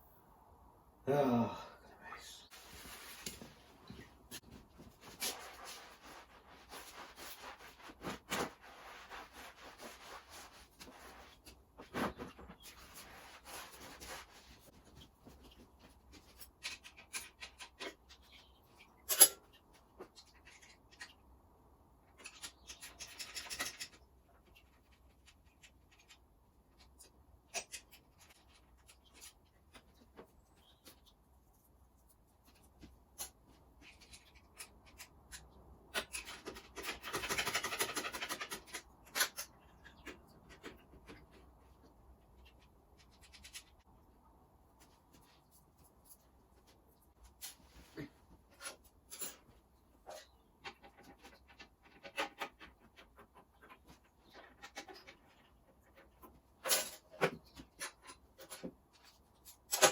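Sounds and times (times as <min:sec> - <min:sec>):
hands rustling and rubbing: 0:02.5 - 0:16.5.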